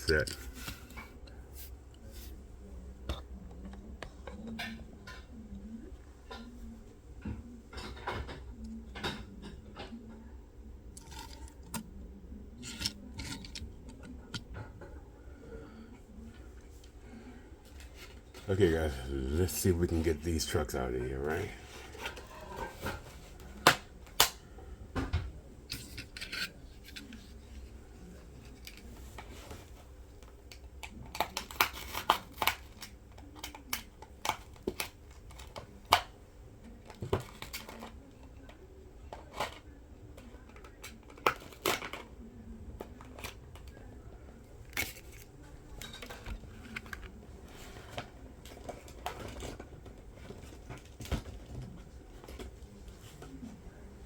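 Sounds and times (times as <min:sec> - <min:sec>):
quiet handling of packaging: 0:00.0 - 0:54.0
packaging clicks and snaps: 0:30.5 - 0:36.1.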